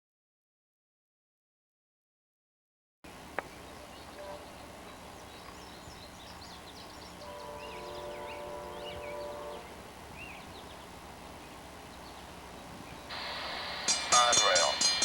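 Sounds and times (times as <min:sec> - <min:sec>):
songbirds chirping: 0:03.0 - 0:14.8
background noise: 0:03.1 - 0:15.0
distant train horn: 0:03.8 - 0:05.0, 0:07.0 - 0:10.6.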